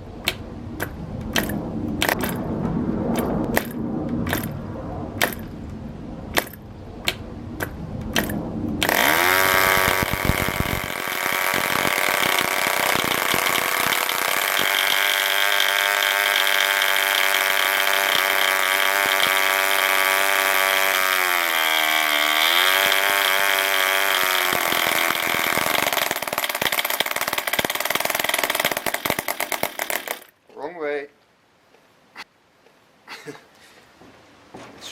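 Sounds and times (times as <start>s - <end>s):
sharp clicks: 0.2s - 2.4s, 6.4s - 15.7s
model engine high-pitched running: 8.8s - 30.3s.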